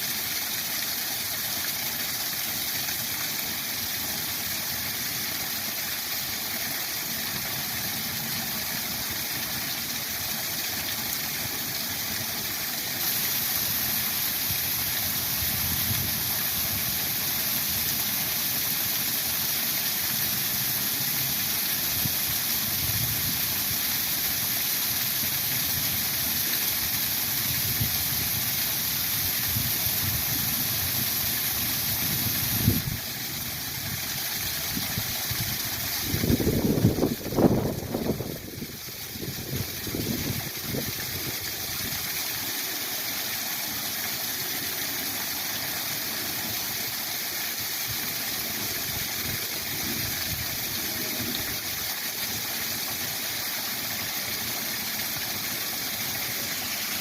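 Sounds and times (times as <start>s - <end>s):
waterfall rushing: 6.0s - 57.0s.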